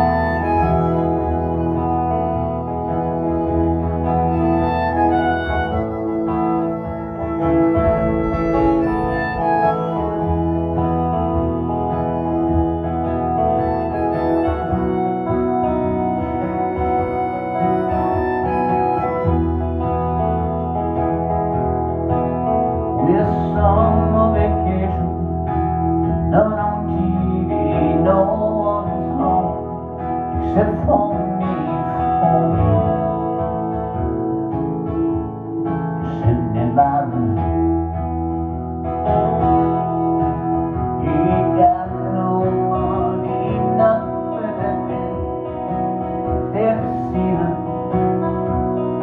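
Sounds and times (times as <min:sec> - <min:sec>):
acoustic guitar strummed chords: 0:00.0 - 0:49.0
man singing: 0:23.0 - 0:25.6, 0:26.2 - 0:33.8, 0:36.0 - 0:37.6, 0:41.0 - 0:45.7, 0:46.3 - 0:48.9.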